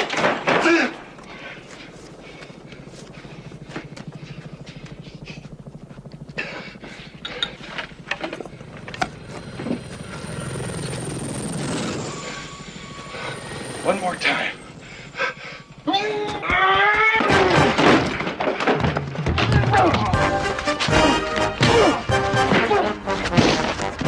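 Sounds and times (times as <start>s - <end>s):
helicopter rotor chopping: 0.0s - 18.5s
thin high whine: 1.2s - 16.6s.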